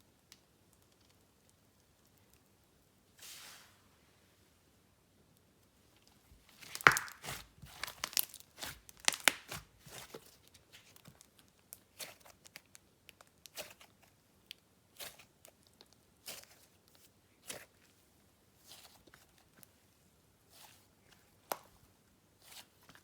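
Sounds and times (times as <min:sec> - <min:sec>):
slime popping and squelching: 0:06.5 - 0:12.7.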